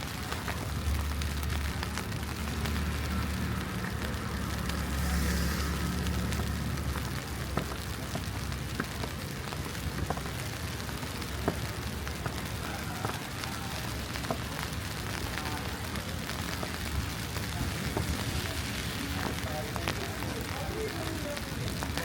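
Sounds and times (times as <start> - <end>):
city background noise: 0.0 - 22.0
vehicle engine rumble passing: 0.6 - 8.8.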